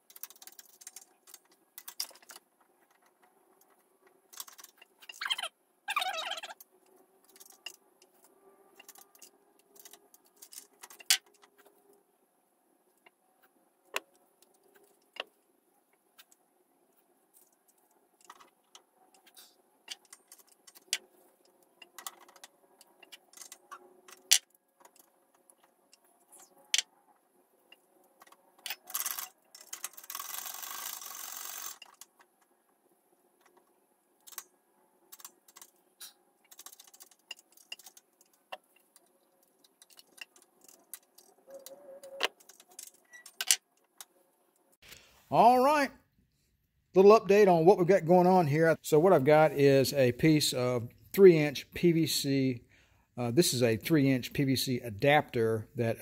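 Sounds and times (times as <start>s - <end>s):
metal and plastic parts clinking: 0.0s - 5.5s, 6.2s - 11.7s, 17.3s - 26.9s, 27.7s - 32.5s, 35.0s - 44.1s.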